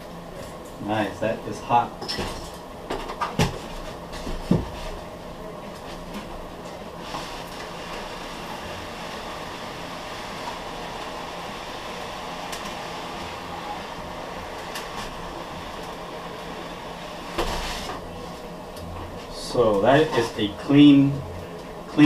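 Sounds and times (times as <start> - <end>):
foam board rubbing hiss: 17.2 - 18.0.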